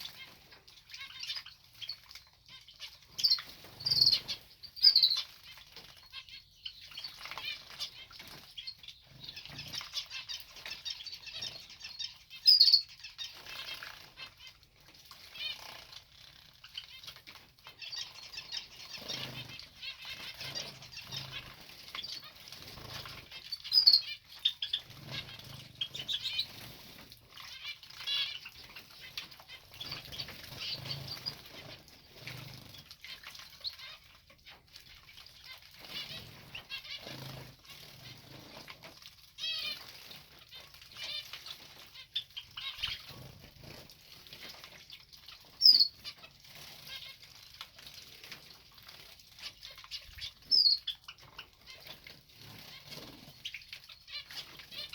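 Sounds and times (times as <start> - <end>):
bird high chirps: 0.0 - 14.5, 16.4 - 26.7, 45.4 - 47.1, 49.7 - 51.9
birds splashing in water: 0.0 - 54.9.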